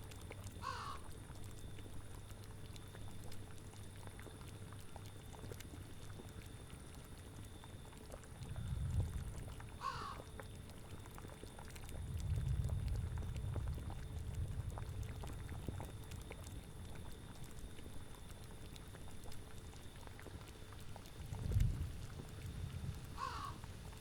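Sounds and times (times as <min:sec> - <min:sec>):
bubbling cauldron: 0:00.0 - 0:24.0
crow cawing: 0:00.6 - 0:01.0, 0:09.8 - 0:10.2, 0:23.2 - 0:23.6
low gusting wind: 0:21.4 - 0:23.8.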